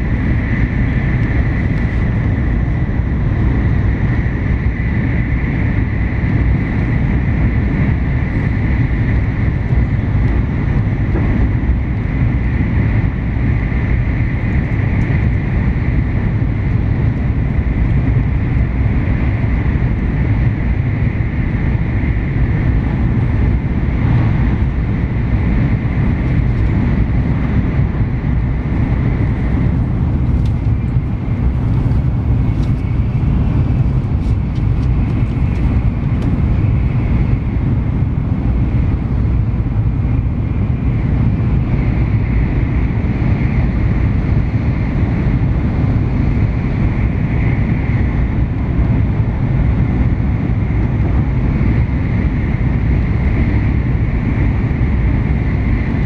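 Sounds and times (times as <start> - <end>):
constant higher hum: 0.0 - 56.0
train cabin low rumble: 0.0 - 56.0.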